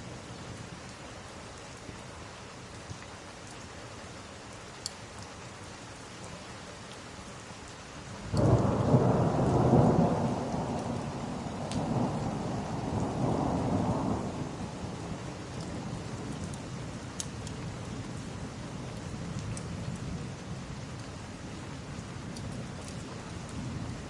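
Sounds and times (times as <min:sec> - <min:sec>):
steady rain: 0:00.0 - 0:24.0
thunderclap rumbling: 0:08.4 - 0:15.2.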